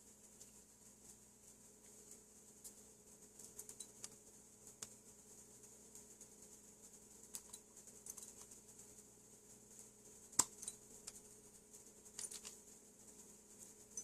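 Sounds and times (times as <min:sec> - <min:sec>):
faint steady hum: 0:00.0 - 0:14.0
metal parts and tools clicking: 0:12.1 - 0:12.6.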